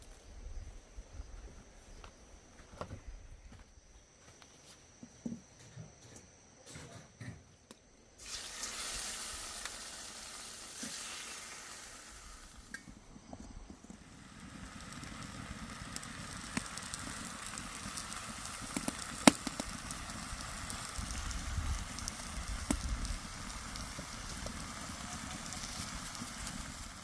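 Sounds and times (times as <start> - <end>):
food sizzling: 8.2 - 13.0, 13.8 - 27.0
wood fire crackling: 8.2 - 27.0
sharp pop: 18.8 - 19.7.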